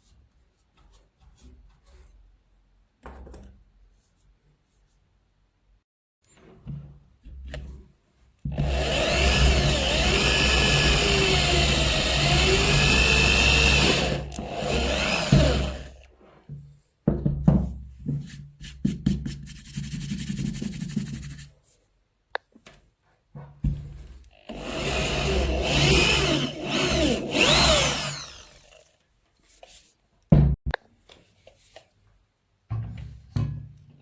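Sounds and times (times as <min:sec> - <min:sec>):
power tool running under load: 0:08.6 - 0:16.0, 0:24.4 - 0:29.0.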